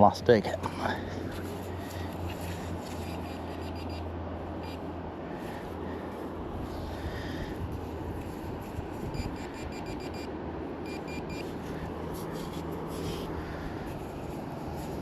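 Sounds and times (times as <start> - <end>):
metal detector short beeps: 3.0 - 4.0, 9.1 - 11.5
wind rumble on microphone: 6.5 - 10.1.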